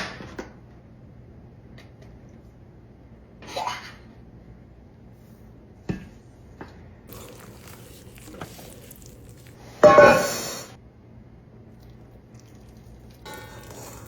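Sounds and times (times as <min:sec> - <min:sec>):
loud crunching or rustling: 0:07.1 - 0:10.5.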